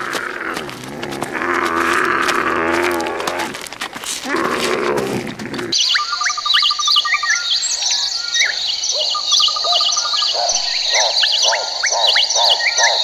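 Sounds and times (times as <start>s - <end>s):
lower repeated bird calls: 5.5s - 13.0s
birds chirping and whistling: 5.7s - 13.0s.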